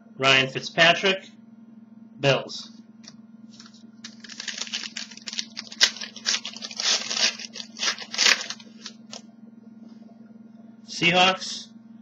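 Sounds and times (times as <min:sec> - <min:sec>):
low electrical hum: 0:00.0 - 0:12.0
packaging rustling and crinkling: 0:03.5 - 0:09.2.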